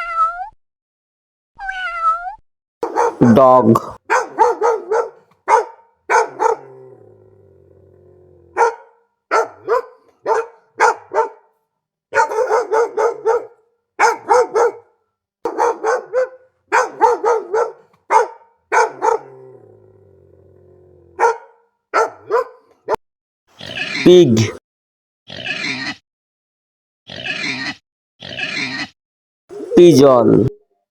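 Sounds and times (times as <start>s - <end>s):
dog barking: 2.8s - 6.8s, 8.5s - 19.5s, 21.1s - 23.0s.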